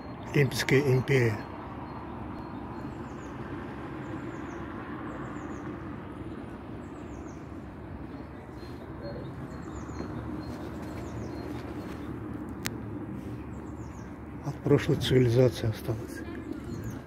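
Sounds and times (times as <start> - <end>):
small bird chirping: 4.1 - 12.7.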